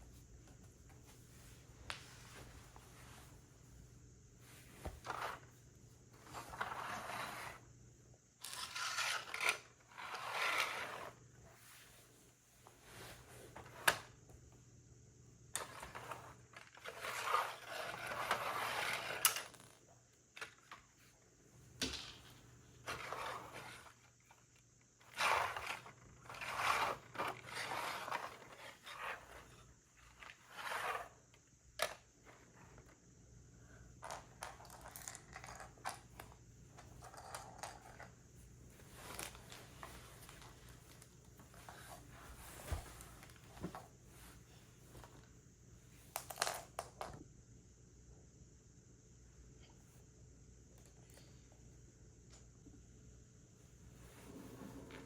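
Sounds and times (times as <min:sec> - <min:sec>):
plastic pieces scraping and rustling: 0:08.4 - 0:11.2, 0:15.6 - 0:19.8, 0:25.0 - 0:31.2.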